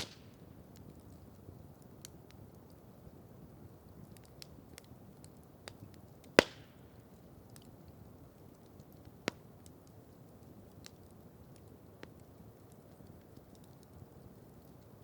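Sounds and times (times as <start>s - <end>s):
loud sharp fire pop: 0.0s - 0.3s, 6.4s - 6.8s
campfire crackling: 0.0s - 15.0s.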